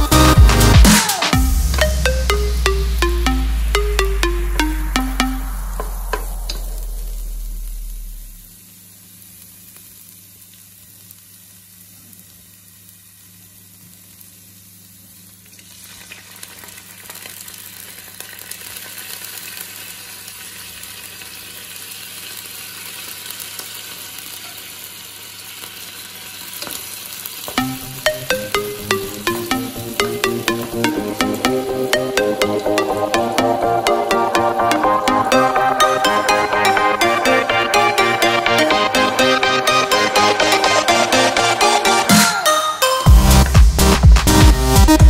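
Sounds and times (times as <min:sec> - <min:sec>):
background music: 0:00.0 - 0:08.4, 0:27.6 - 0:45.0
onions sizzling in oil: 0:07.9 - 0:29.2.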